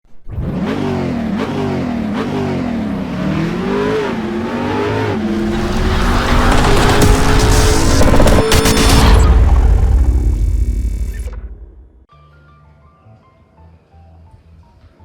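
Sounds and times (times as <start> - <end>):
car engine revving: 0.2 - 12.1.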